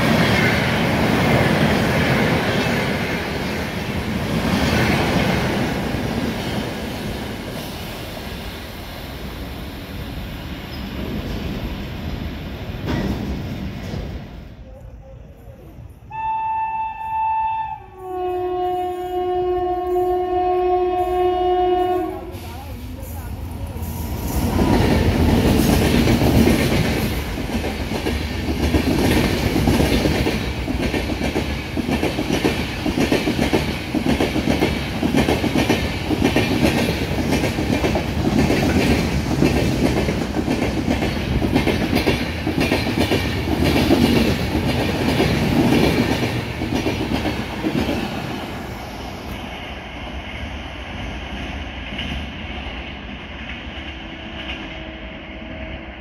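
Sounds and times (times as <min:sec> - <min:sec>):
train wheels clattering over rail joints: 0:12.7 - 0:14.4, 0:24.4 - 0:48.2.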